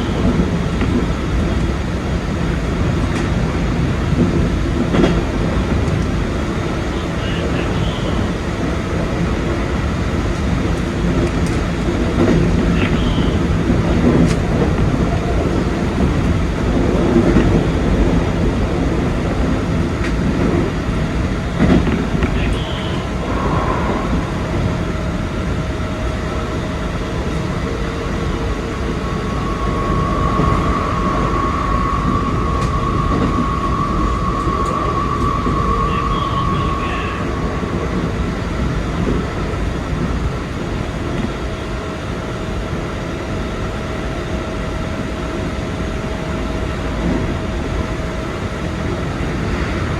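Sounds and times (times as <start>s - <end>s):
train wheels rumbling on rail: 0.0s - 49.9s
steady high whine: 17.2s - 49.9s.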